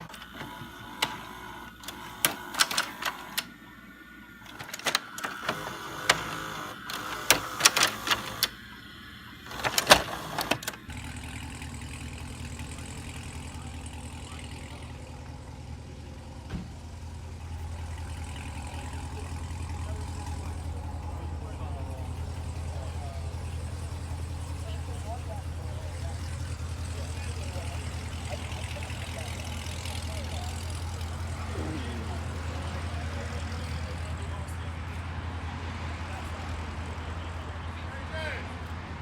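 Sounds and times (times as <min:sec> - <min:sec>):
sharp irregular clicks and knocks: 0:00.0 - 0:03.6, 0:04.4 - 0:08.6, 0:09.5 - 0:11.0
car engine running: 0:00.0 - 0:39.0.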